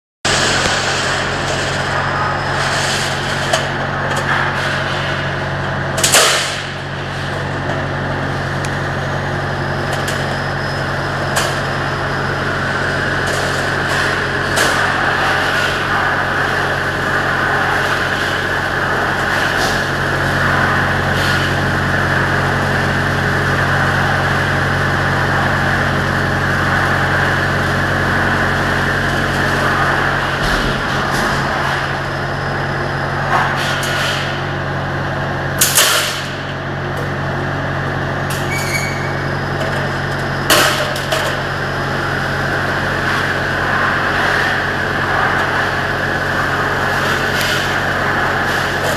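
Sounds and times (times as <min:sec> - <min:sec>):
machine motor hum: 0:00.3 - 0:48.9
sharp mechanical knocks: 0:30.3 - 0:32.4.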